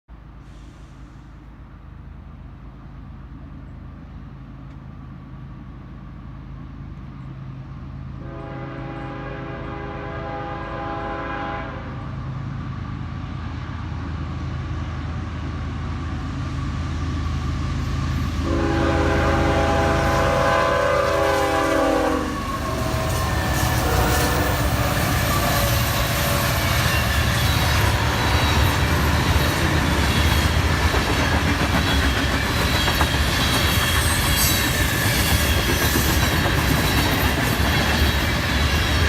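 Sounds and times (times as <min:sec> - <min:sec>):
train air horn: 0:08.2 - 0:12.1, 0:18.4 - 0:28.8.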